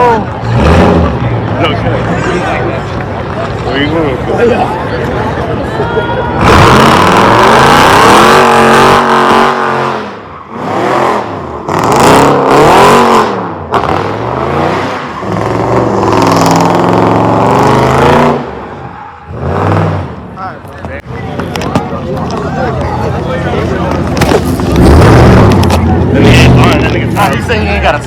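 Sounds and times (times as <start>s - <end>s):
car engine revving: 0.0s - 2.2s, 6.4s - 20.4s, 23.1s - 28.0s.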